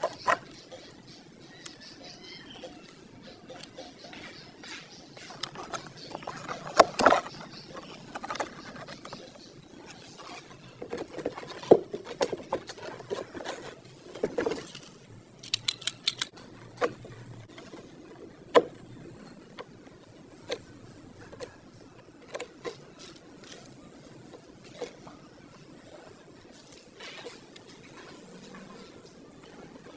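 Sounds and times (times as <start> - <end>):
small parts clicking and tapping: 14.2 - 17.0.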